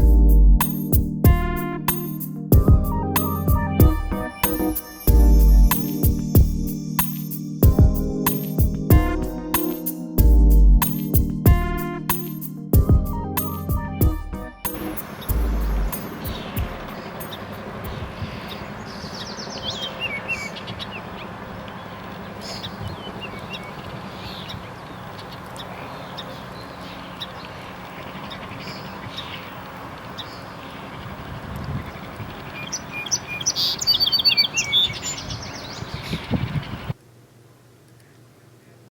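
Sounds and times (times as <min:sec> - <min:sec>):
birds chirping: 0:00.6 - 0:37.0
steady background noise: 0:14.8 - 0:33.4.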